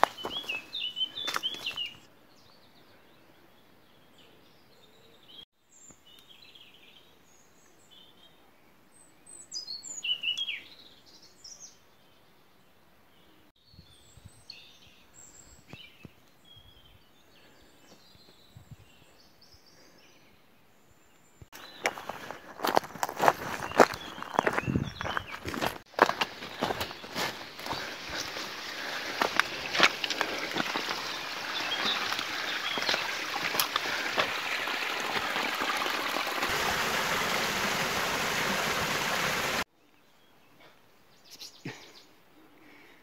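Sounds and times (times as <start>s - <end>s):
footsteps through undergrowth: 0.0s - 2.1s, 21.5s - 35.6s
birds chirping and calling: 21.6s - 34.6s.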